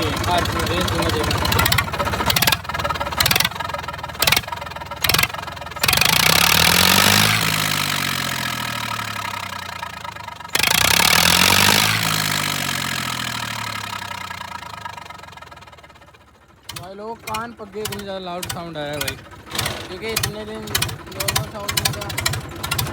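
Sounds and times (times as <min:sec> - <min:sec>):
tractor diesel engine revving: 0:00.0 - 0:22.9.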